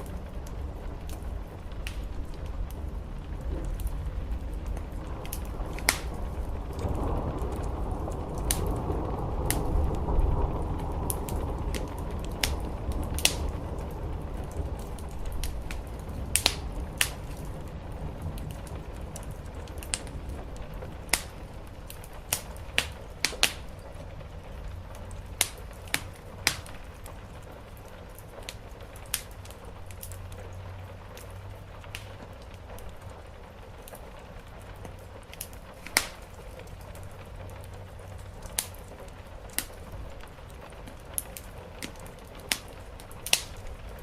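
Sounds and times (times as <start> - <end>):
low rumble: 0.0 - 27.8
wood fire crackling and popping: 0.0 - 44.0.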